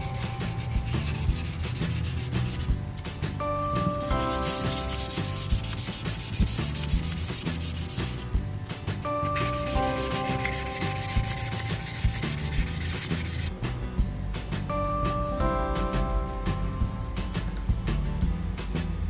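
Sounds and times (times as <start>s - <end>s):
sanding scratchy rubbing: 0.0s - 2.8s, 3.4s - 8.4s, 9.2s - 13.5s
background music with held notes: 0.0s - 19.0s.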